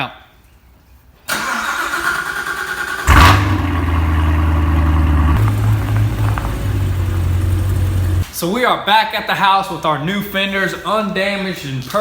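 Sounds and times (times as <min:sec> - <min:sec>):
car engine pulling away: 0:01.4 - 0:08.3.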